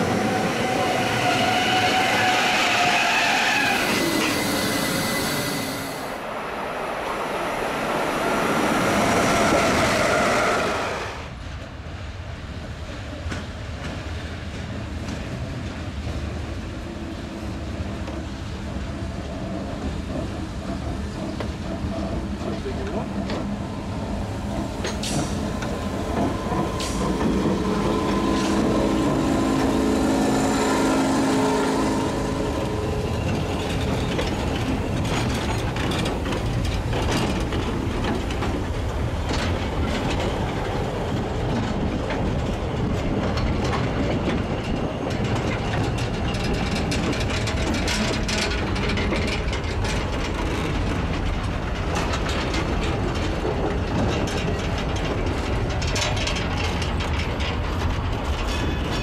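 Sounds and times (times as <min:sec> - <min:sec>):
train rumble: 0:00.0 - 0:59.0
train machine hum: 0:12.8 - 0:59.0
wheels clacking on track: 0:17.7 - 0:59.0.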